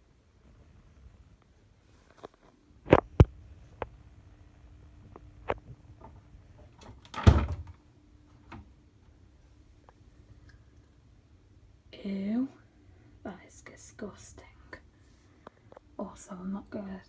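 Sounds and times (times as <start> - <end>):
washing machine parts knocking: 6.8 - 7.8.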